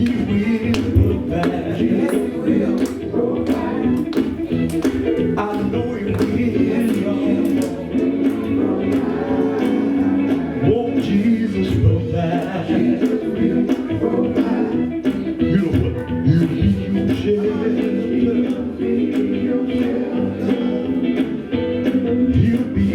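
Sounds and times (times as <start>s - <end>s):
gospel band playing: 0.0s - 22.9s
singers performing gospel song: 0.0s - 22.9s.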